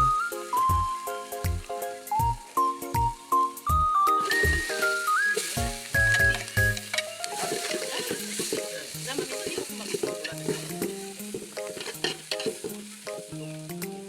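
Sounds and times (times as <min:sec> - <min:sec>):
food sizzling in a frying pan: 0:00.0 - 0:14.0
quiet background music: 0:00.0 - 0:14.0
utensil clicks and scrapes: 0:04.2 - 0:12.8.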